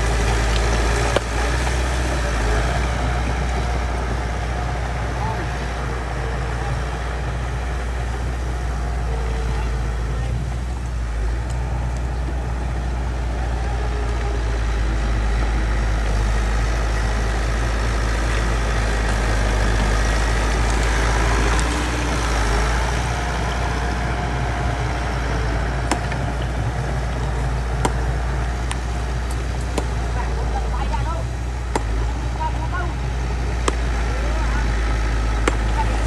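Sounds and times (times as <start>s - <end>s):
bulldozer diesel engine running: 0.0s - 36.0s.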